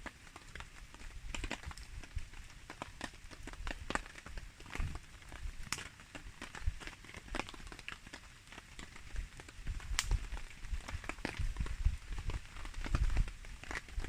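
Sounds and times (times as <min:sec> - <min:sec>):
campfire crackling and popping: 0:00.0 - 0:14.0
rain pattering: 0:00.0 - 0:14.0.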